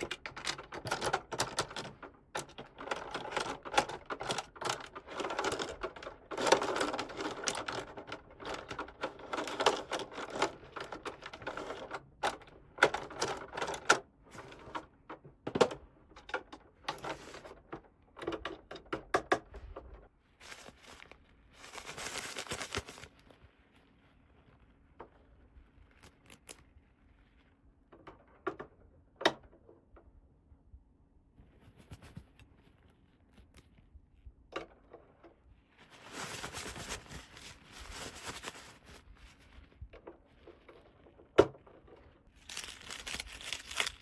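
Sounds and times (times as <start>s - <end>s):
plastic toy pieces clicking: 0.0s - 14.8s, 42.4s - 44.0s
rustling: 0.0s - 15.1s, 20.2s - 27.8s, 35.4s - 44.0s.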